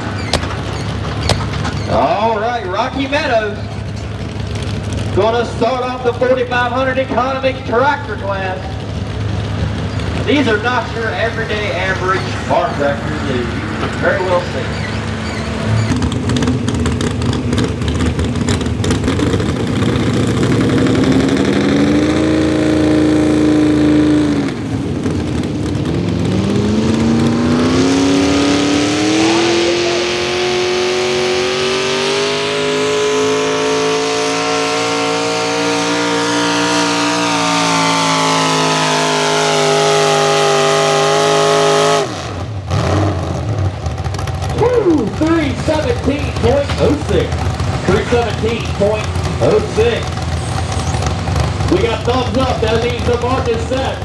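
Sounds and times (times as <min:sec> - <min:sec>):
tractor engine at high revs: 0:00.0 - 0:54.0.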